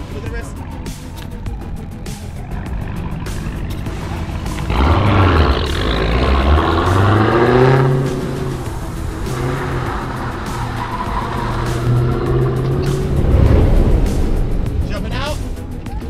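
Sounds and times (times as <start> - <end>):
car engine revving hard: 2.4 - 14.8.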